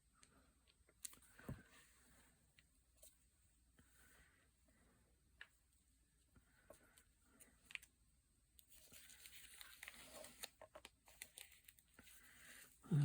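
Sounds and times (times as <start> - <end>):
soft paper rustling: 8.6 - 12.8.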